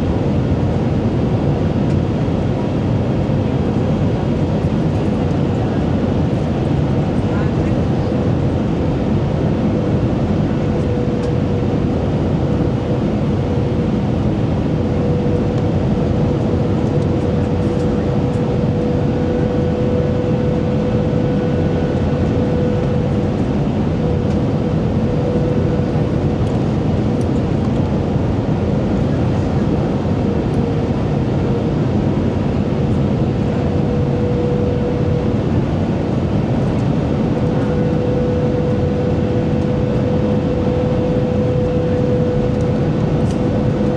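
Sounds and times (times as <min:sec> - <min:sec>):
aircraft cabin engine and airflow rush: 0:00.0 - 0:43.9.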